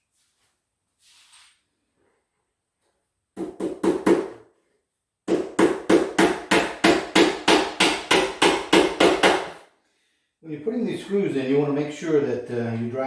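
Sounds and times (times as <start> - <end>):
hammer tapping nails into wood: 5.3 - 9.6.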